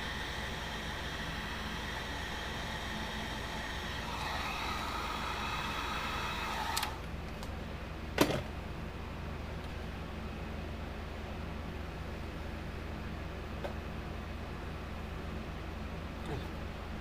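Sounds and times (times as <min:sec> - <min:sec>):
heat gun blowing: 0:00.0 - 0:07.1.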